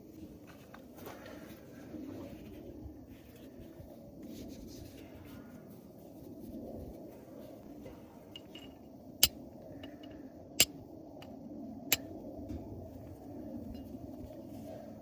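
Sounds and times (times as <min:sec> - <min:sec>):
steel striker clicking on flint: 0:08.4 - 0:11.3, 0:11.9 - 0:12.1.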